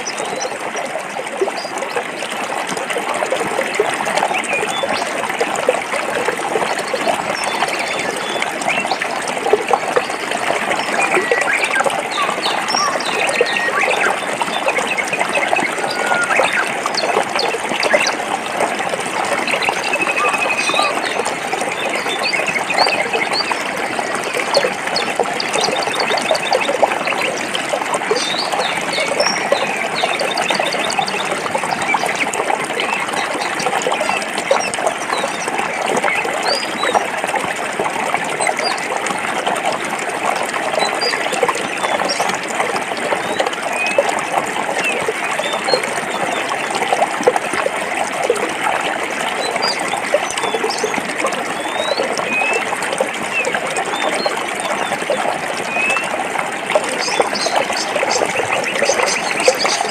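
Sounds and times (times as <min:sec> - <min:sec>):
stream water over rocks: 0:00.0 - 0:59.9
birds chirping: 0:06.6 - 0:18.2, 0:19.2 - 0:37.1, 0:49.4 - 0:56.2, 0:56.8 - 0:59.9.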